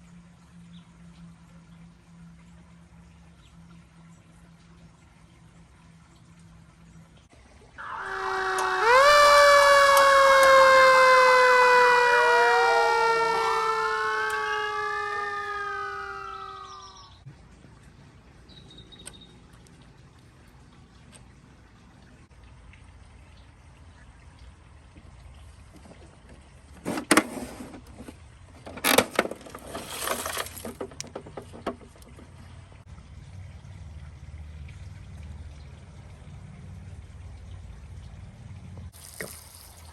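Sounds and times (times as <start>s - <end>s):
siren wail: 7.7s - 17.2s
siren yelp: 7.8s - 17.2s
plastic toy parts clattering: 26.8s - 32.0s.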